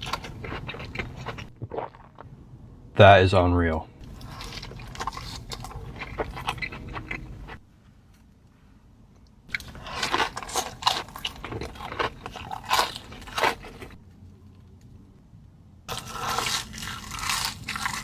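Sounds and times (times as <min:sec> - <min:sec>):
crunchy chewing of food: 0:00.0 - 0:02.3, 0:04.0 - 0:07.6, 0:09.5 - 0:14.0, 0:15.9 - 0:18.0.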